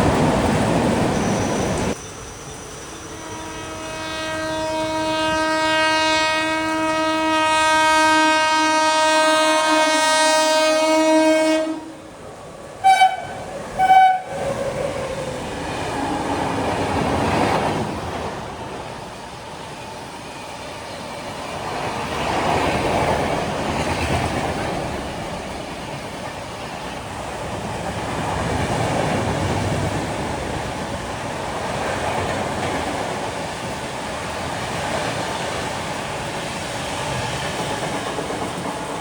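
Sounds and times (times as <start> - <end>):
train running on tracks: 0.0 - 39.0
train horn blasts: 3.1 - 12.0, 12.8 - 14.4.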